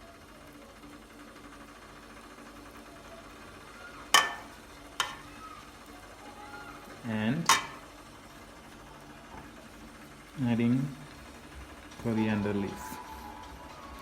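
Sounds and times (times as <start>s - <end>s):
utensil knocking on dishware: 4.2s - 5.2s.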